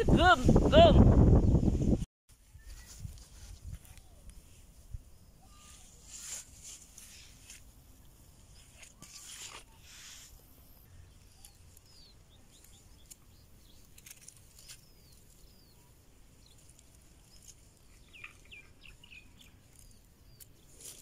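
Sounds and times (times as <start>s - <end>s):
faint small bird chirps: 2.4s - 7.5s.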